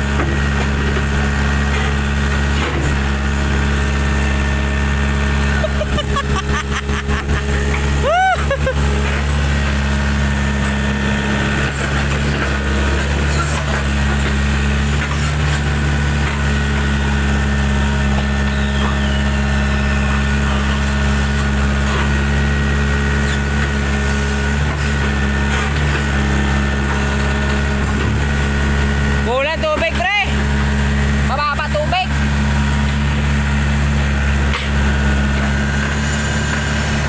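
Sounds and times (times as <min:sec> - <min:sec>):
engine humming steadily: 0:00.0 - 0:37.0.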